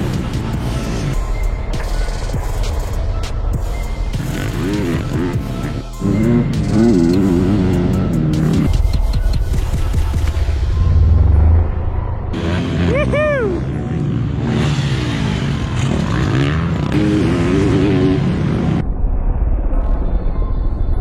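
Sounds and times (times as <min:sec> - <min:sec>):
dirt bike engines revving: 0:00.0 - 0:01.4, 0:04.1 - 0:08.9, 0:12.3 - 0:18.8.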